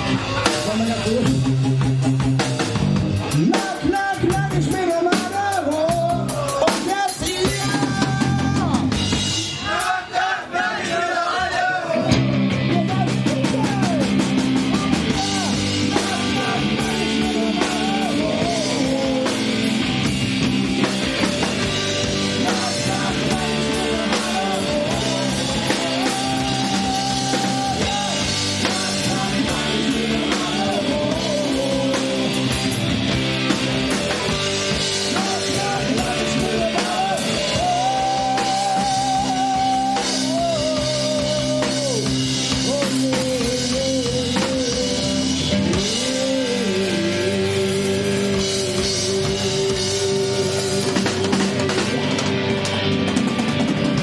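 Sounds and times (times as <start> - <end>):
guitars: 0.0 - 9.8, 11.9 - 54.0
bass: 0.0 - 10.0, 11.3 - 54.0
drums: 0.0 - 54.0
voices singing: 3.3 - 52.6.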